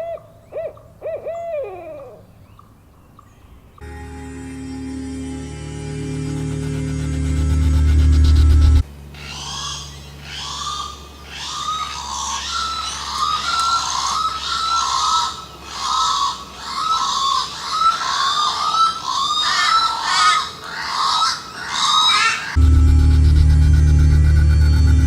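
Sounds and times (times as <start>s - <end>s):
bird calling: 0.0s - 3.8s, 9.2s - 22.6s.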